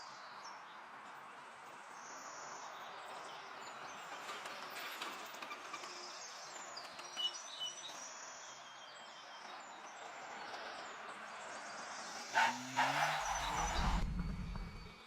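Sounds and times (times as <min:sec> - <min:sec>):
birds chirping: 0:11.7 - 0:15.0.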